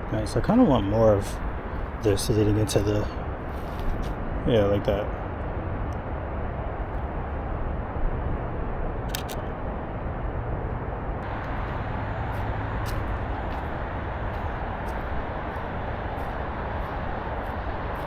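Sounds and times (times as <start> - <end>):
low outdoor rumble: 0.0 - 18.0
sharp clicks: 9.1 - 9.5.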